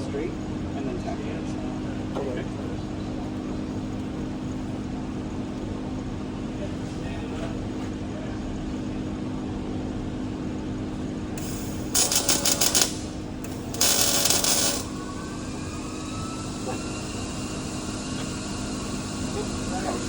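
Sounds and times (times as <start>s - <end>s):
low machine hum: 0.0s - 20.0s
crackling arc welding: 11.4s - 14.9s.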